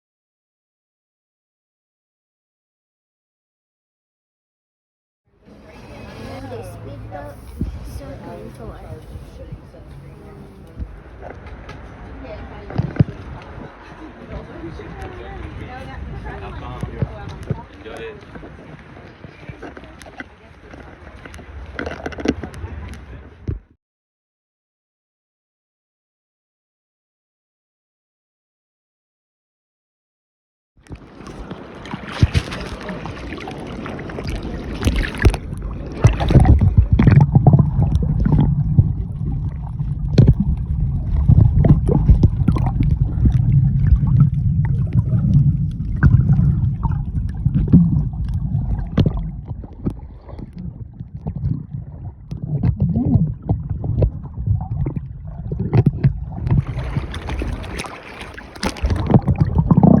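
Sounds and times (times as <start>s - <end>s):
speedboat engine: 5.3s - 23.4s
water rushing: 5.4s - 23.4s, 30.9s - 60.0s
wind gusts: 5.5s - 19.6s.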